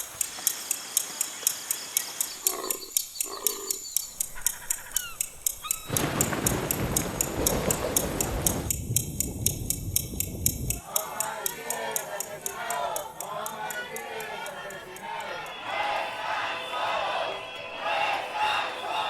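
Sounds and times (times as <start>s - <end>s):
rhythmic ticking: 0.0s - 19.0s
animal calls: 1.3s - 8.2s.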